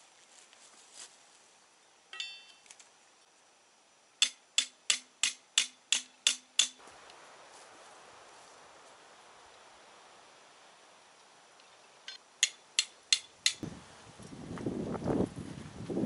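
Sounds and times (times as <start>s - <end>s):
hammer striking metal: 2.1s - 2.6s, 4.2s - 6.8s, 12.1s - 13.6s
metallic clink: 2.1s - 2.6s.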